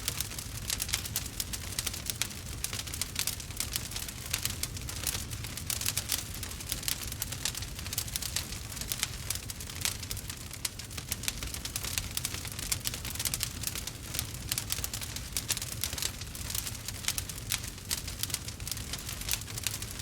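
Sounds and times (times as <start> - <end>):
low fire rumble: 0.0 - 20.0
wood fire crackling and popping: 0.0 - 20.0.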